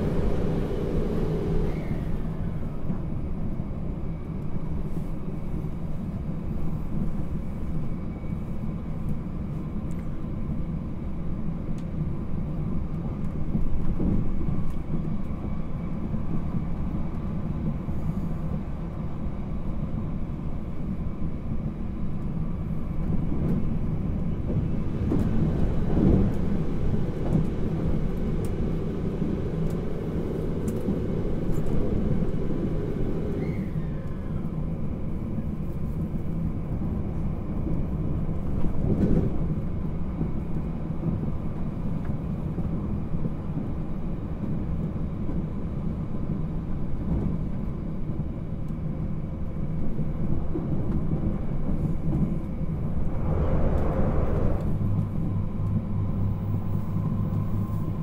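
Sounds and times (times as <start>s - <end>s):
train rumbling on rails: 0.0s - 58.0s
train bumping on rails: 13.0s - 15.0s, 23.0s - 34.9s.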